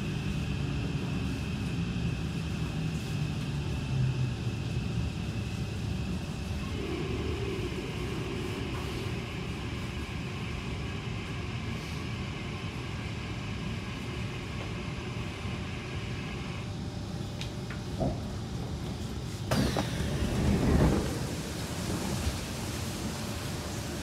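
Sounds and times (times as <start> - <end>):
train cabin rumble: 6.0 - 12.8, 17.8 - 24.0
higher-pitched running noise: 6.6 - 11.2.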